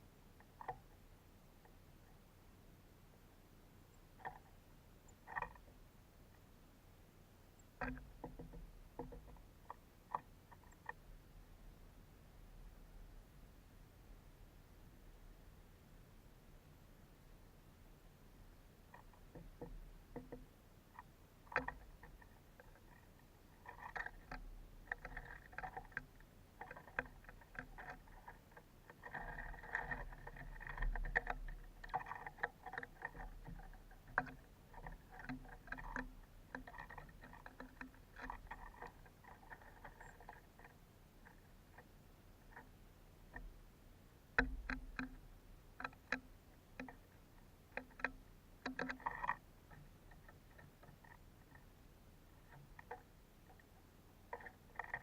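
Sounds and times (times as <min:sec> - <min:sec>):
clicks and knocks: 0:07.8 - 0:11.0, 0:18.9 - 0:41.9, 0:47.7 - 0:51.7
light rattling: 0:18.9 - 0:43.7.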